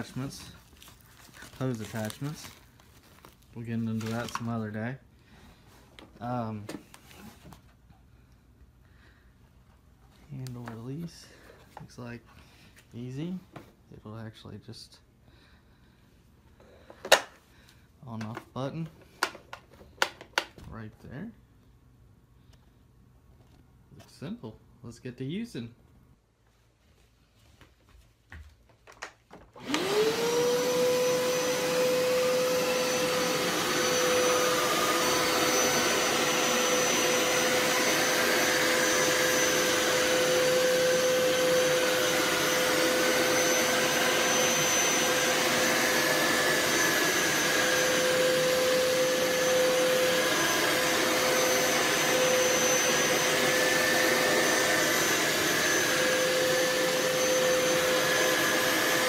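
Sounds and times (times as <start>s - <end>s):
carpet cleaner motor whine: 29.6s - 59.0s.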